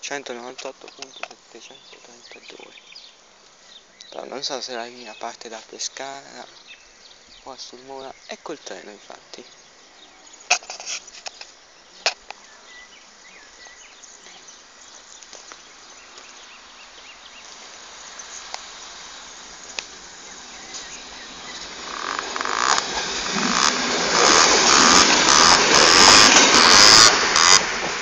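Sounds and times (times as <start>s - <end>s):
sharp clicks: 0.5s - 1.4s, 21.9s - 27.8s
diesel railcar running past: 17.0s - 28.0s.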